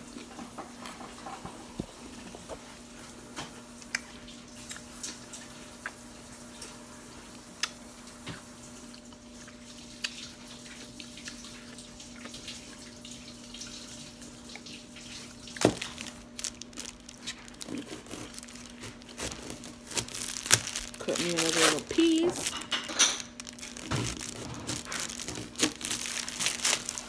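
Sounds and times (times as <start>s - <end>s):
wet chewing: 14.5s - 27.0s.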